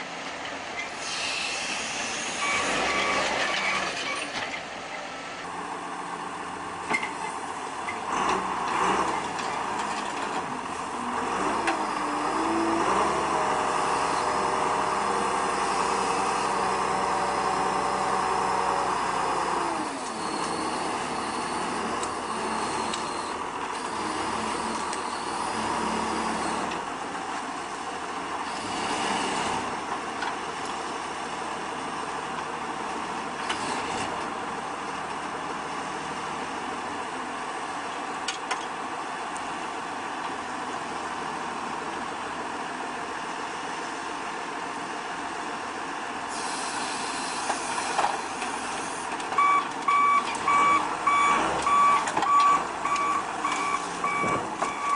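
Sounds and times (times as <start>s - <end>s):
heavy machinery engine revving: 8.0s - 27.0s, 28.2s - 34.5s, 46.3s - 54.9s.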